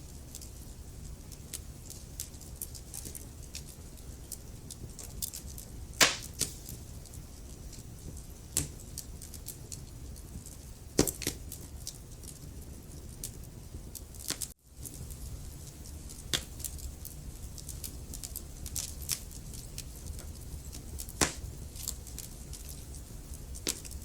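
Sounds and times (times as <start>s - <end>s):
wood fire crackling: 0.0s - 24.0s
fire pops: 4.3s - 12.5s, 13.2s - 24.0s.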